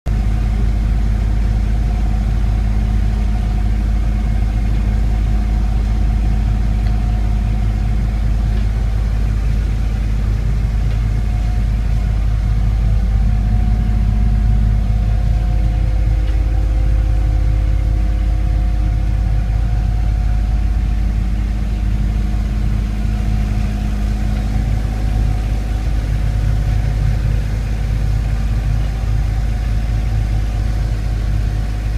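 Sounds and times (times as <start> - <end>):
boat engine rumbling: 0.0 - 31.9.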